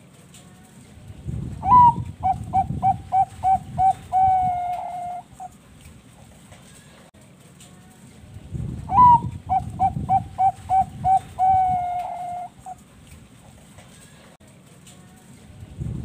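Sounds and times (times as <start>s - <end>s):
dove cooing: 1.6s - 5.6s, 8.9s - 12.8s.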